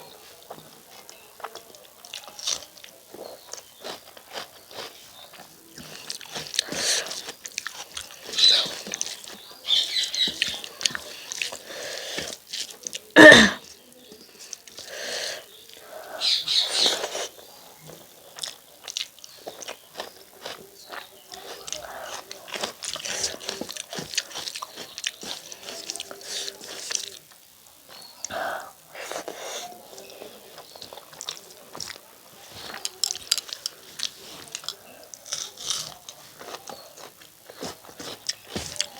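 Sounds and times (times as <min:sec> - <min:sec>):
wet chewing and mouth smacks: 0:17.9 - 0:27.2
sharp crunch: 0:35.3 - 0:38.9.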